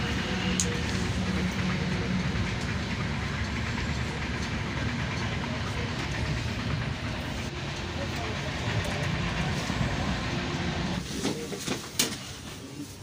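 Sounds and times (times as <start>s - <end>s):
train carriage rumbling on rails: 0.0s - 13.0s.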